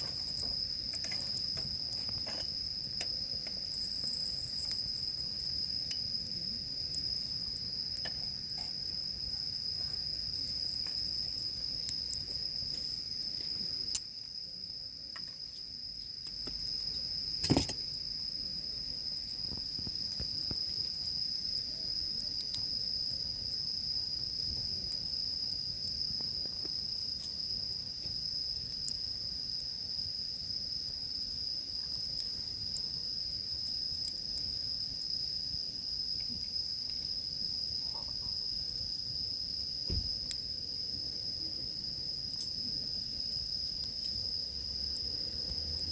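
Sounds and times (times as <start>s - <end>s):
campfire crackling: 0.0s - 45.9s
insects trilling: 0.0s - 45.9s
sharp pop: 39.9s - 40.1s.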